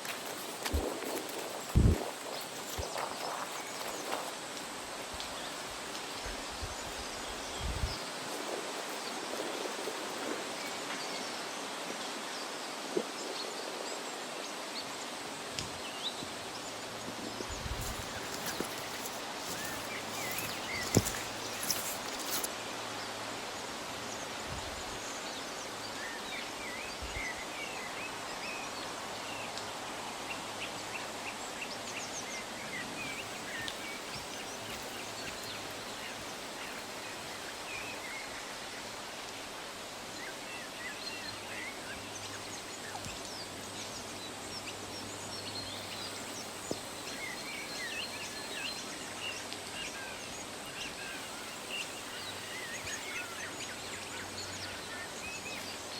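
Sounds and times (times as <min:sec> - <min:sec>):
outdoor background noise: 0:00.0 - 0:55.9
birds chirping: 0:17.4 - 0:22.5, 0:33.0 - 0:37.9, 0:50.8 - 0:55.9.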